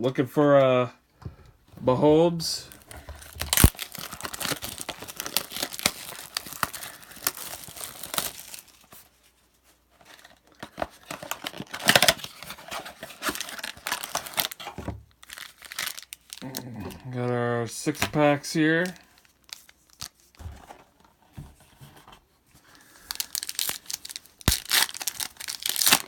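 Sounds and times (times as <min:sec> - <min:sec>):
packaging tearing and crinkling: 0:02.6 - 0:09.0, 0:10.1 - 0:17.3, 0:18.8 - 0:20.4, 0:22.8 - 0:26.0.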